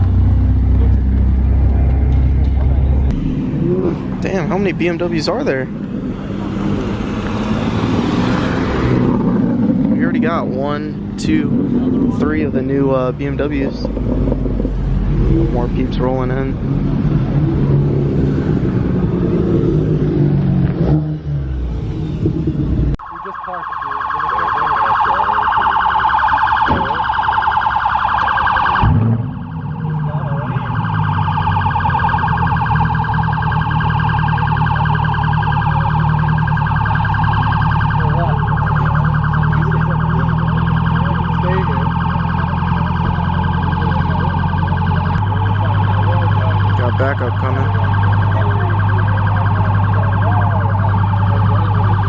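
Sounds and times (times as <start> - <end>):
car engines idling: 0.0 - 8.0, 9.0 - 52.0
warbling electronic siren: 22.5 - 52.0.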